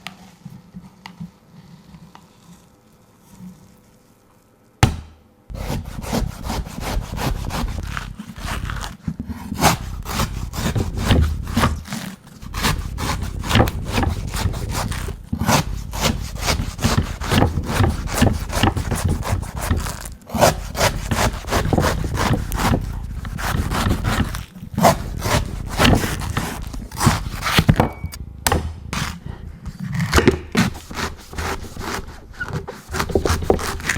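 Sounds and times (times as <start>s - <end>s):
knife knocking coconut: 4.8s - 5.2s
knife chopping and scraping husk: 4.8s - 33.9s.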